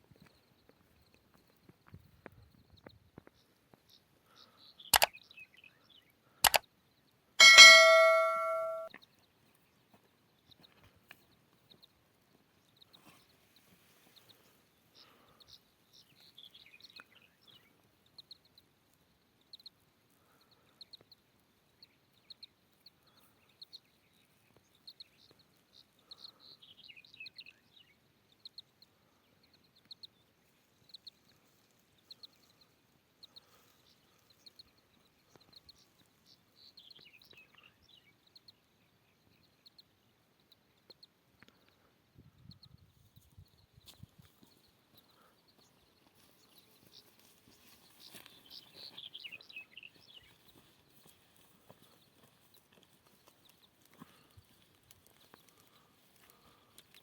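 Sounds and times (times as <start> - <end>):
bird chirping: 3.3 - 6.6, 7.4 - 8.9, 21.8 - 41.8, 44.4 - 51.1.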